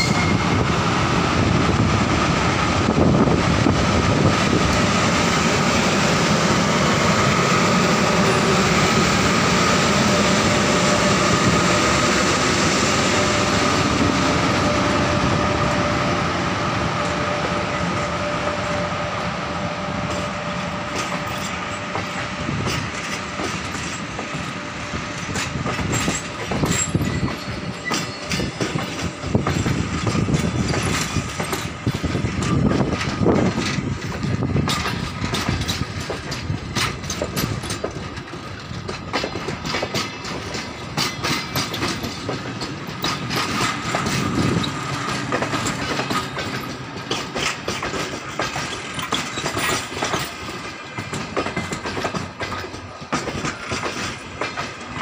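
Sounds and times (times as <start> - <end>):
train rolling rumble: 0.0 - 55.0
train wheels clattering over rail joints: 20.1 - 55.0.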